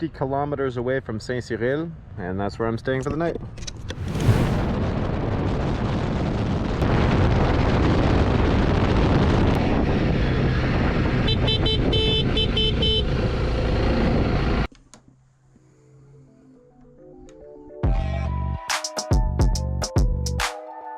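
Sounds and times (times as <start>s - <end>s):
wind rush: 3.7s - 11.3s.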